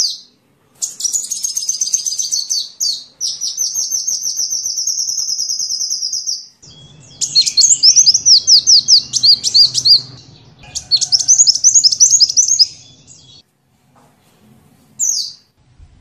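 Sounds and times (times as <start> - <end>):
sunbird twittering trills: 0.0 - 13.4
bird whistled notes: 0.8 - 13.4.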